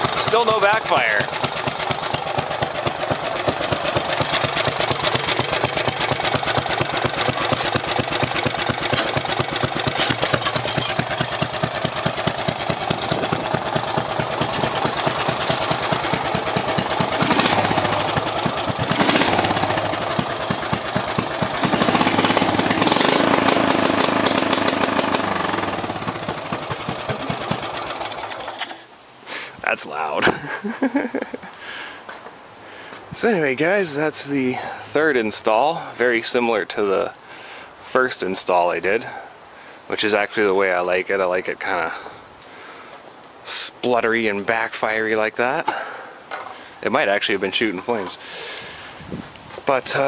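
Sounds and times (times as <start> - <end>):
engine stuttering against rev limiter: 0.0 - 28.8.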